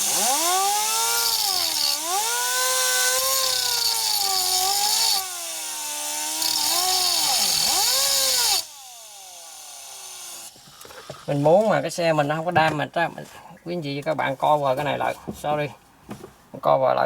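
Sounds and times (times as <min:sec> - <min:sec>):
pneumatic cut-off tool grinding metal: 0:00.0 - 0:11.6.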